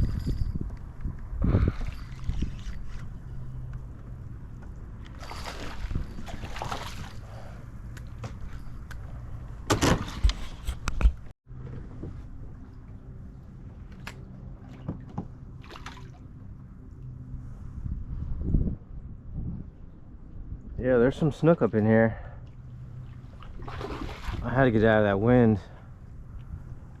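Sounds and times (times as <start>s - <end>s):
water sloshing around kayak: 1.6s - 3.4s, 5.1s - 7.6s, 22.4s - 24.6s.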